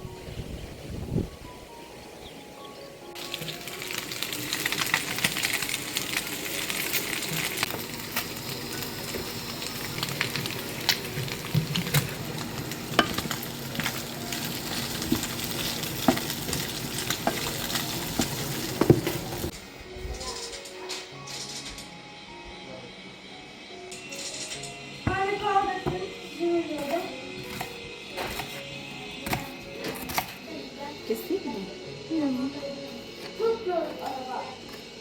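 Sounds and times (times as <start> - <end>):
food sizzling in a pan: 3.1 - 19.6, 23.9 - 35.0.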